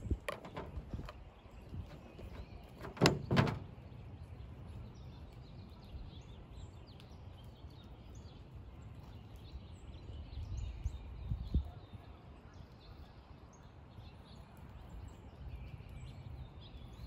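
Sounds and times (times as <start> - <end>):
low outdoor rumble: 0.0 - 4.2.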